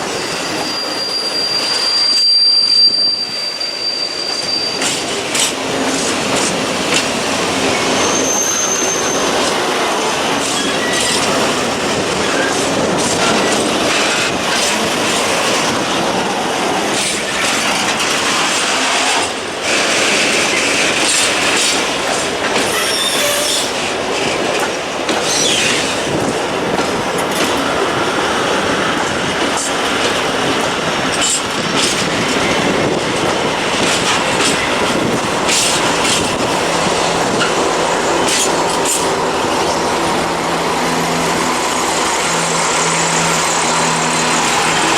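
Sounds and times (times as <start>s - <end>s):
wheels screeching: 0.0s - 15.8s, 25.2s - 26.2s
coal wagons rolling on track: 4.6s - 44.9s.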